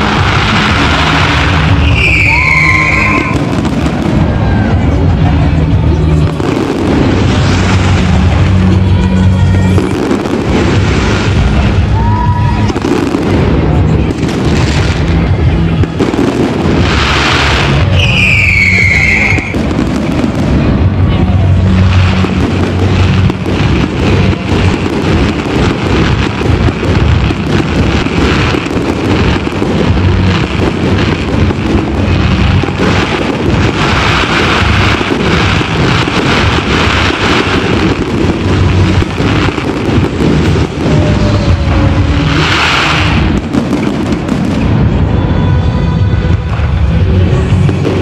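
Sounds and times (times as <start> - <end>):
firework whistle falling in pitch: 1.7 - 3.5, 17.8 - 19.6.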